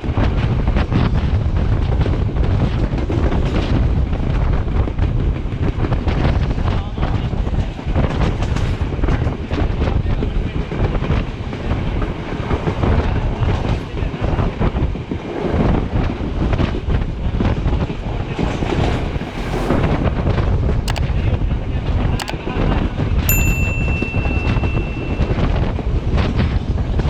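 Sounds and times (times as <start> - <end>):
wind buffeting microphone: 0.0 - 27.0
sharp clicks: 20.9 - 21.1.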